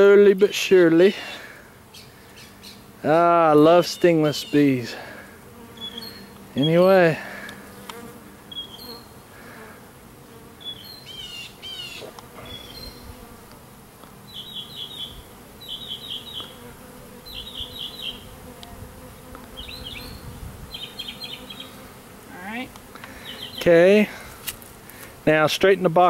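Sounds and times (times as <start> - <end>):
bee swarm buzzing: 0.0 - 26.0
small bird chirping: 5.8 - 6.8, 8.5 - 9.2, 10.6 - 13.2, 14.3 - 18.3, 19.5 - 21.8.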